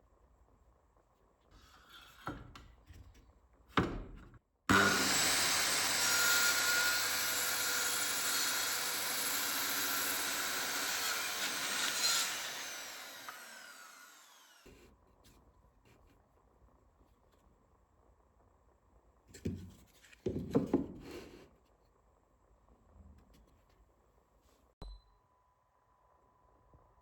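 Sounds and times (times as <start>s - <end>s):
power tool cutting plywood: 4.7s - 14.7s.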